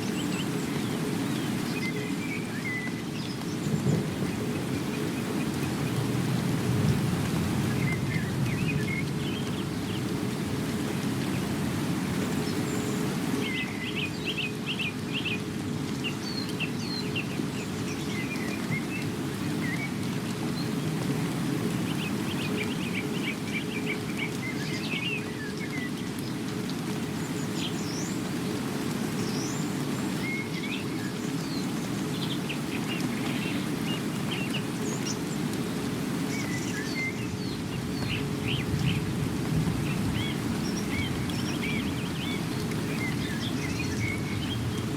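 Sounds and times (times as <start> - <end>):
steady rain: 0.0 - 44.9
birds chirping and trilling: 29.2 - 39.2, 39.8 - 44.9.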